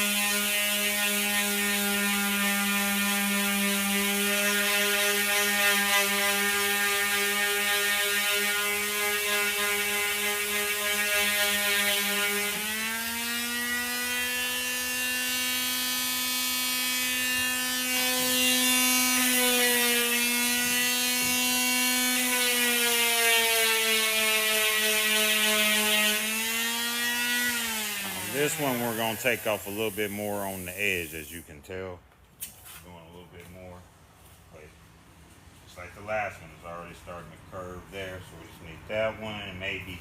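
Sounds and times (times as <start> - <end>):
power tool whining: 0.0 - 31.1.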